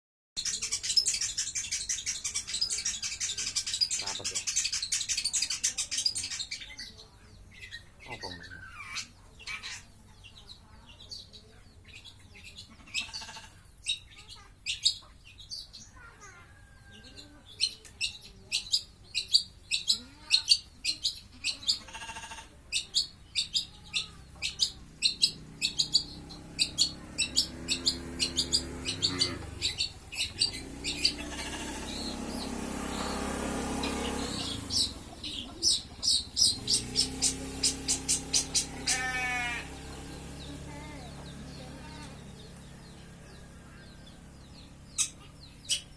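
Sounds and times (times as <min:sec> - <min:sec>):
bird chattering song: 0:00.4 - 0:45.9
passing engine: 0:21.3 - 0:45.9.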